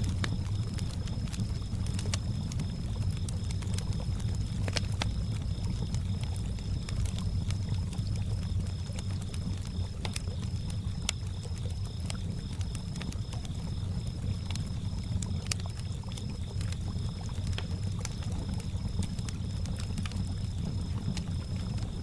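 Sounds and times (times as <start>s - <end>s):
campfire crackling and popping: 0.0s - 22.0s
crickets chirping: 0.0s - 22.0s.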